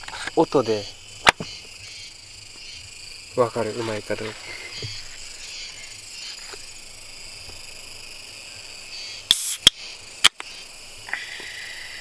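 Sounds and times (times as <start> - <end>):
insects chirring: 0.0 - 12.0
beer can opening with hiss: 9.3 - 10.5
can tab click: 9.3 - 10.5
sharp snap: 9.3 - 10.5.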